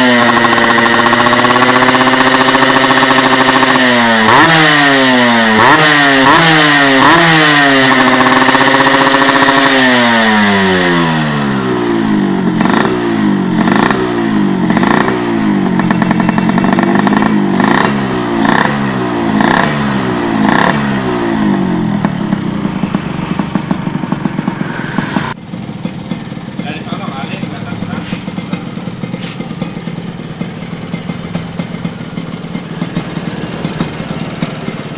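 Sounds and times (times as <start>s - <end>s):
motorcycle engine revving: 0.0s - 34.9s
exhaust crackle: 11.0s - 34.9s.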